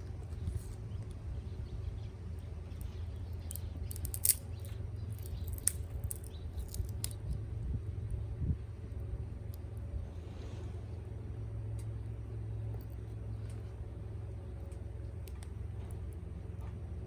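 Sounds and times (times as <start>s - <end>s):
low steady rumble: 0.0s - 17.0s
wood fire crackling and popping: 2.8s - 7.4s.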